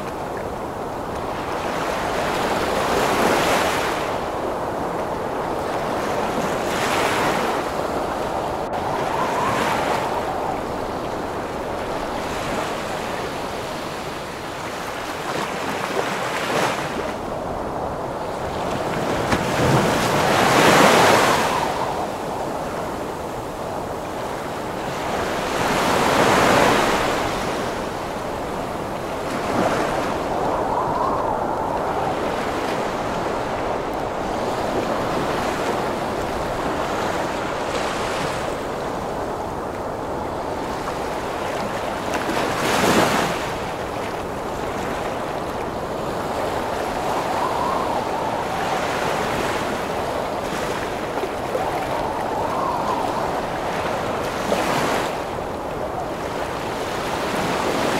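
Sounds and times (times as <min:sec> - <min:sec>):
ocean waves breaking: 0:00.0 - 0:57.9
strong wind: 0:00.0 - 0:57.9.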